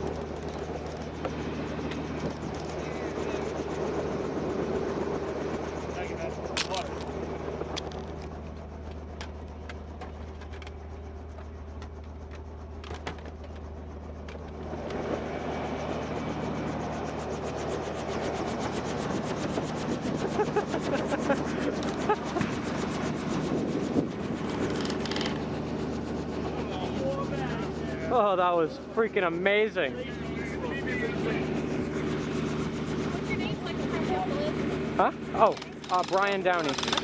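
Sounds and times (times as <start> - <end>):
helicopter running: 0.0 - 37.0
rotor chopping: 35.4 - 37.0.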